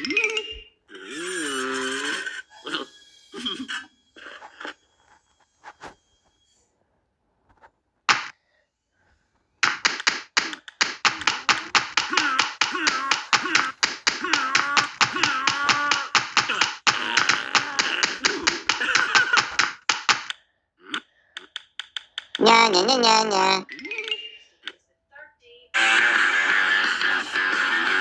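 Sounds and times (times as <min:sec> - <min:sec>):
sharp taps: 0:08.1 - 0:08.3, 0:09.6 - 0:20.4.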